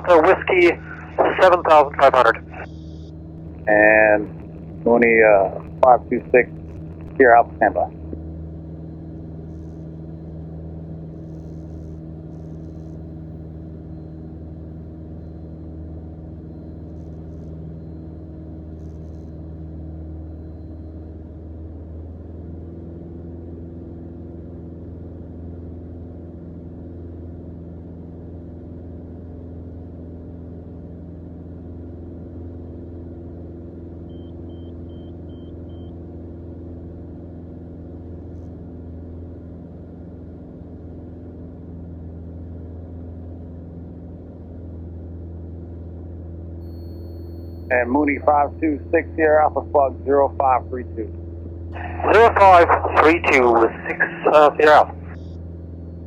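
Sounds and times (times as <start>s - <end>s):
faint beeps: 0.0s - 8.1s, 46.6s - 49.3s
airplane engine droning: 0.0s - 56.0s.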